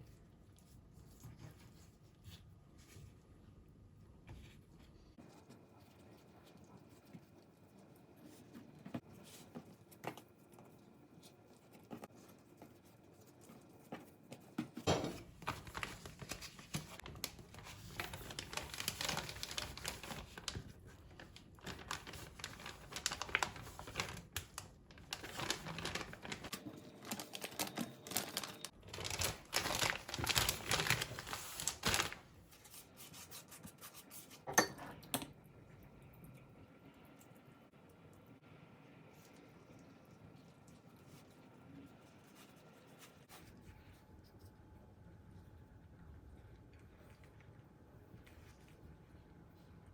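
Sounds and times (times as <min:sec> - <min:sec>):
crinkling and rustling: 0:08.2 - 0:33.0.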